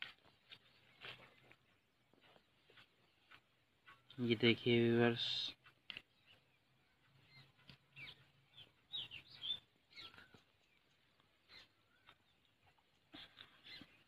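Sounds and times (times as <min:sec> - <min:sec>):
faint bird chirps: 0:05.6 - 0:14.0.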